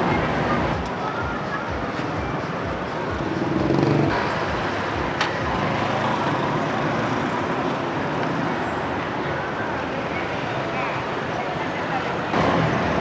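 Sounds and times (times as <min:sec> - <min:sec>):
traffic passing: 0:00.0 - 0:13.0
sharp click: 0:05.2 - 0:05.4.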